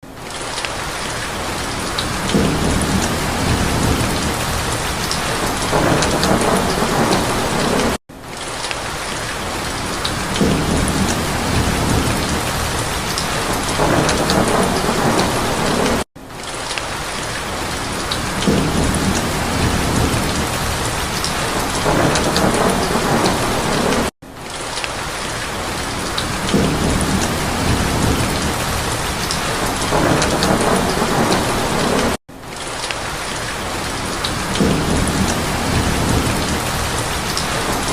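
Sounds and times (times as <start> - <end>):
heavy rain: 0.0 - 37.9
thunder rumbling: 2.0 - 8.0, 10.0 - 16.1, 17.8 - 24.1, 25.9 - 32.2, 34.0 - 37.9.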